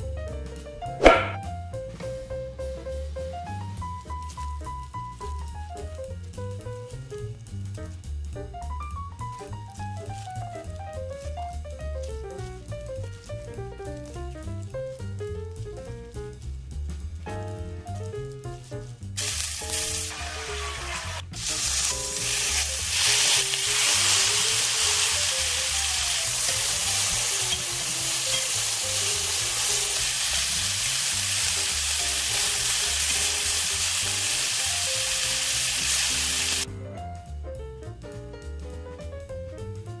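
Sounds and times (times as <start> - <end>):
kebabs sizzling in skillet: 1.0 - 36.7.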